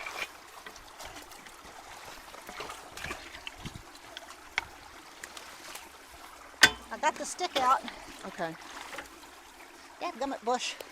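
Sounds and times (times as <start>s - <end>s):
debris knocks and splashes: 0.0s - 1.4s, 2.4s - 3.8s, 6.6s - 9.1s
creek water flowing: 0.0s - 10.9s.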